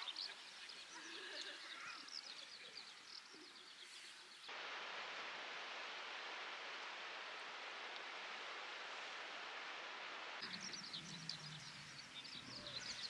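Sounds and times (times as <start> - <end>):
birds chirping faintly: 0.0 - 4.5, 10.4 - 13.0.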